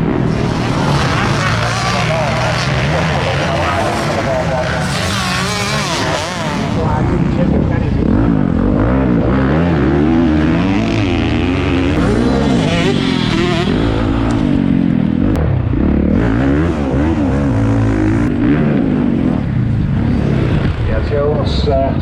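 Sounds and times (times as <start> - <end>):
motocross bike engines revving: 0.0 - 21.9.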